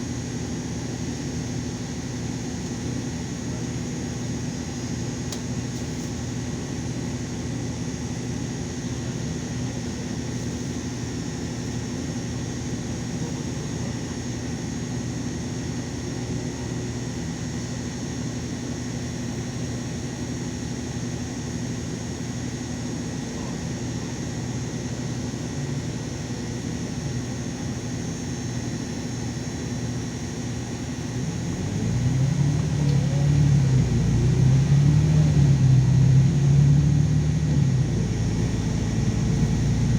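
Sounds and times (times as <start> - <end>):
bus engine humming: 30.3 - 39.9.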